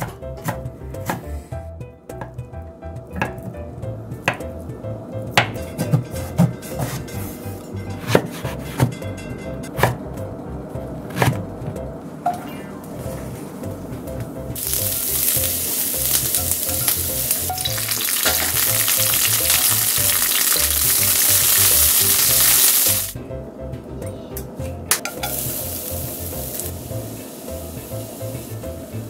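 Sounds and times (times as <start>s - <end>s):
vegetables sizzling in hot oil: 14.6s - 23.2s, 25.1s - 29.0s.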